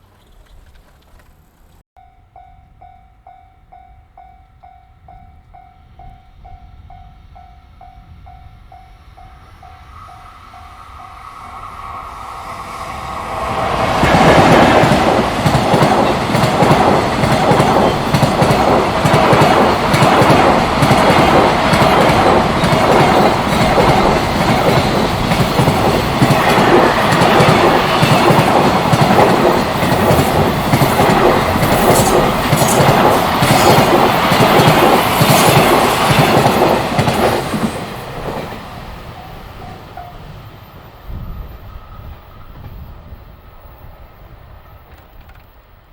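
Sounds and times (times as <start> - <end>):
freight train wheels clattering: 12.6 - 40.8.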